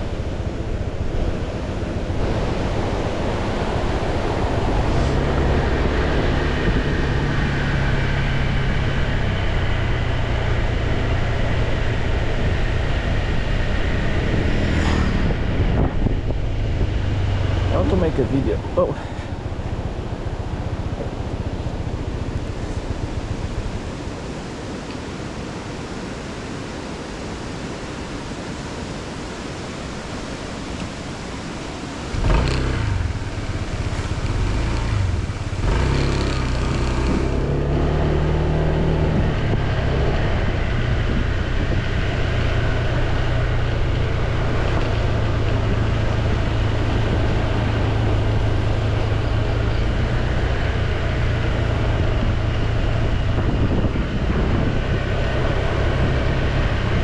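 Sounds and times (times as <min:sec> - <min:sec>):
wind noise: 0:00.0 - 0:57.0
motorcycle engine: 0:31.9 - 0:57.0.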